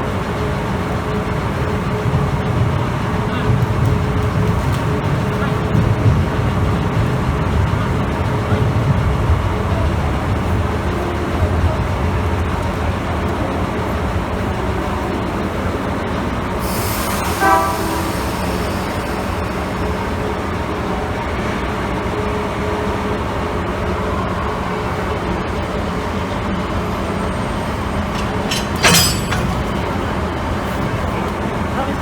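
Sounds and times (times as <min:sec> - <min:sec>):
diesel locomotive idling: 0:00.0 - 0:32.0
short horn toot: 0:16.6 - 0:20.4
loud hiss burst: 0:16.6 - 0:20.6.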